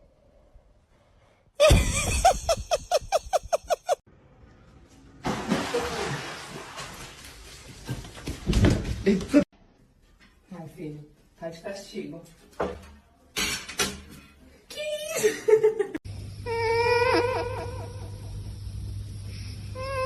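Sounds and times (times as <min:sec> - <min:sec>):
person laughing: 0:01.6 - 0:04.0.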